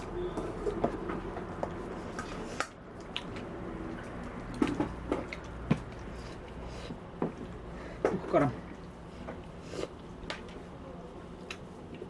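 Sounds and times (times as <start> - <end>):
wet chewing and mouth smacks: 1.6 - 7.8, 11.3 - 12.0.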